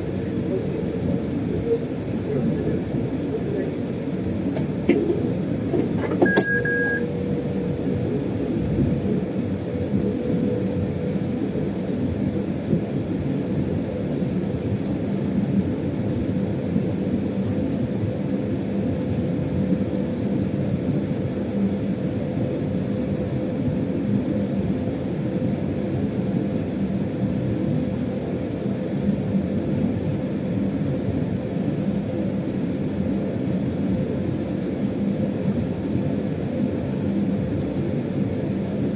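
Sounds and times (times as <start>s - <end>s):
locomotive rumble inside cab: 0.0s - 38.9s
short high beep: 6.1s - 7.0s.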